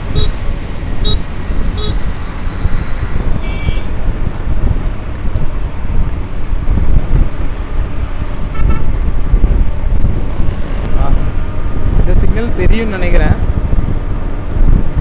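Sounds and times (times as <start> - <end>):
vehicle horn toot: 0.0 - 4.0, 8.3 - 8.9
wind and road noise: 0.0 - 15.0.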